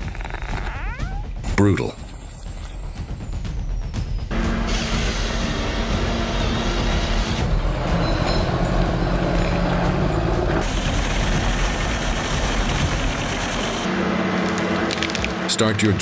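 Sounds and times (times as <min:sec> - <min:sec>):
heavy machinery engines under load: 0:04.3 - 0:16.0.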